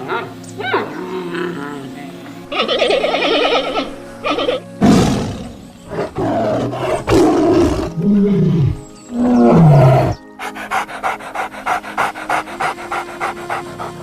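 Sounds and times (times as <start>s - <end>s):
tiger roaring and growling: 4.8s - 14.0s.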